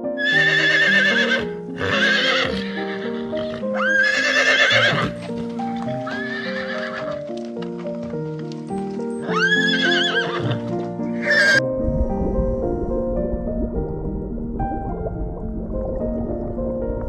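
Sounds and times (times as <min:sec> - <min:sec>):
background music: 0:00.0 - 0:17.0
horse whinnying: 0:00.2 - 0:05.2, 0:06.0 - 0:07.2, 0:09.2 - 0:11.6
light hoofbeats: 0:03.4 - 0:11.6.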